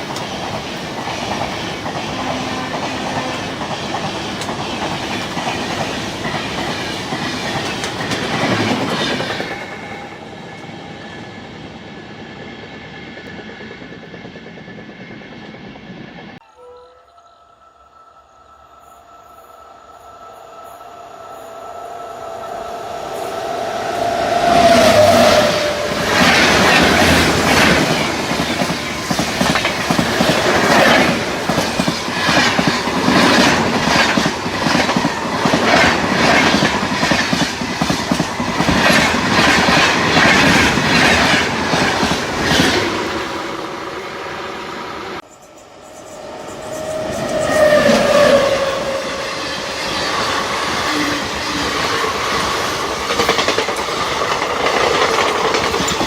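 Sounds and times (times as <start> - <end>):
train wheels clattering: 24.5 - 43.6, 49.7 - 56.0.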